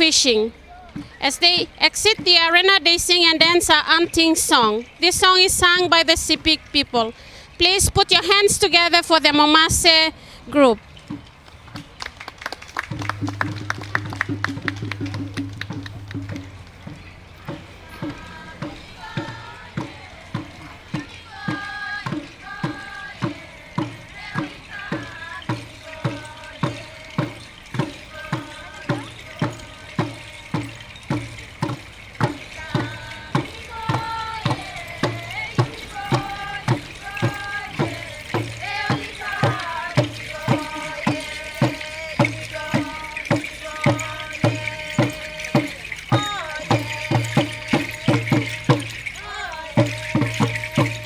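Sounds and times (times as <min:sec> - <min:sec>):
drums beating steadily: 0:00.1 - 0:06.9, 0:11.1 - 0:51.0
group singing: 0:17.5 - 0:51.0.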